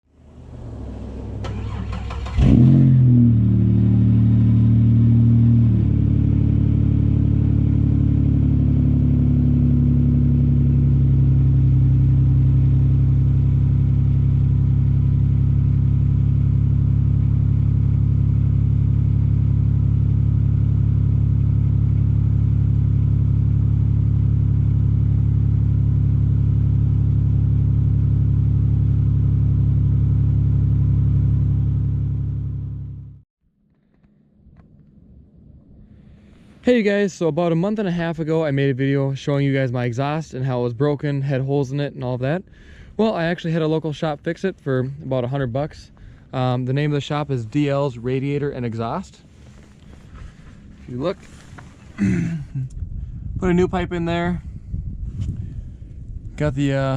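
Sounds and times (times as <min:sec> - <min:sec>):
car engine idling: 0:00.1 - 0:33.2, 0:42.2 - 0:54.6
starter motor cranking: 0:01.4 - 0:02.7.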